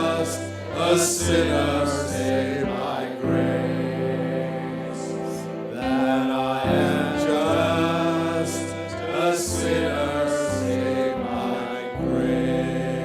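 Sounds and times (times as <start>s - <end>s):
instrumental accompaniment: 0.0s - 13.0s
men singing gospel song: 0.0s - 13.0s.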